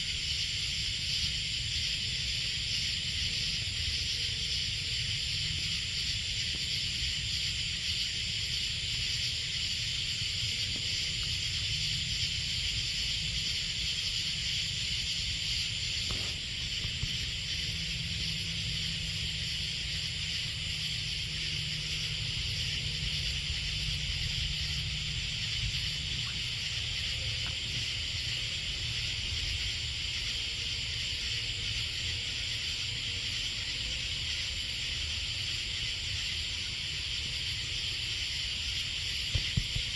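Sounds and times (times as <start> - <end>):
night insects buzzing: 0.0 - 39.9
low steady rumble: 15.7 - 29.4.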